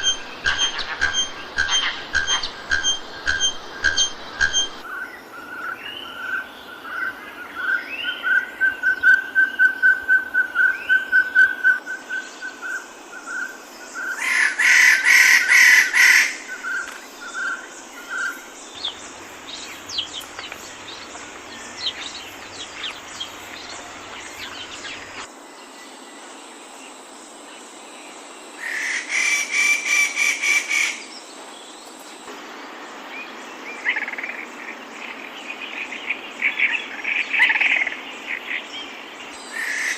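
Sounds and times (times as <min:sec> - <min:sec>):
birds whistling: 0:00.0 - 0:04.8, 0:15.5 - 0:25.3
buzzing chattering bird calls: 0:00.0 - 0:04.8, 0:17.5 - 0:25.3
insects hissing: 0:12.0 - 0:37.0.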